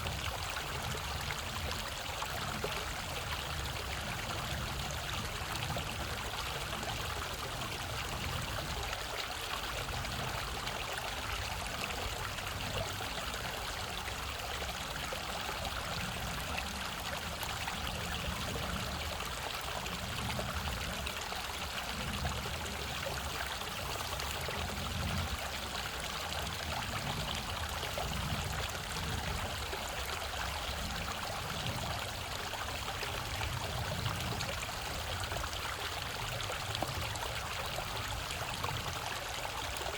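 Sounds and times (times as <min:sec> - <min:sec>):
stream water over rocks: 0:00.0 - 0:39.9.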